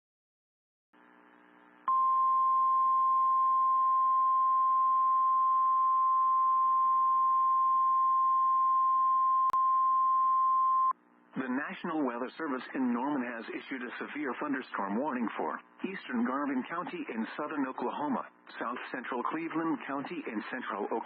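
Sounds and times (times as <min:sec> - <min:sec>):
high-pitched alarm beep: 0:01.9 - 0:08.4.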